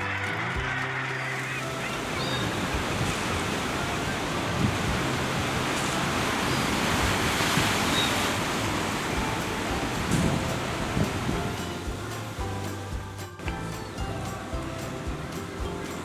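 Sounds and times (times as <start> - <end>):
surf: 0.0 - 16.0
gannet colony calling: 0.1 - 12.4
wind: 1.3 - 16.0.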